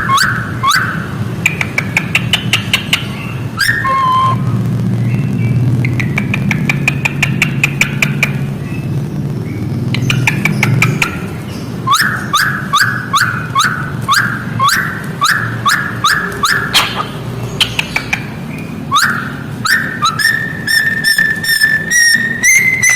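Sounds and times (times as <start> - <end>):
cockatiel whistling: 0.0 - 1.1, 3.6 - 4.4, 11.9 - 17.1, 18.9 - 22.9
sharp high bird chirps: 2.1 - 4.4, 9.5 - 22.9.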